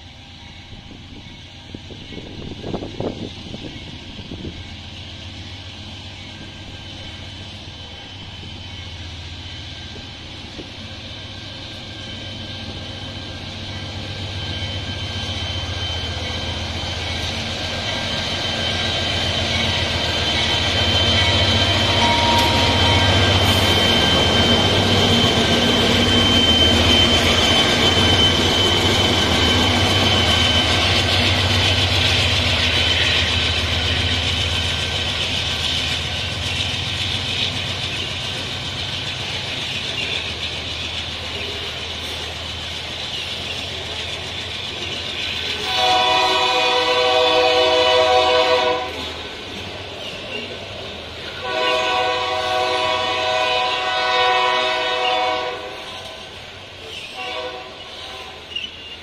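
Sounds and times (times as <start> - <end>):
high-pitched whine: 0.0 - 45.7
locomotive engine rumble: 0.0 - 55.4.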